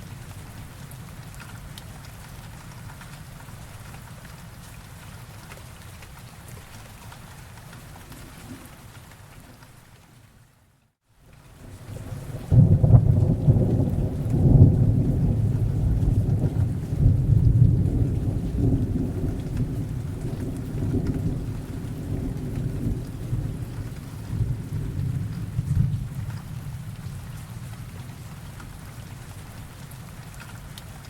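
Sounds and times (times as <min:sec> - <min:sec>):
steady rain: 0:00.0 - 0:31.0
deep rolling thunder: 0:11.9 - 0:27.4.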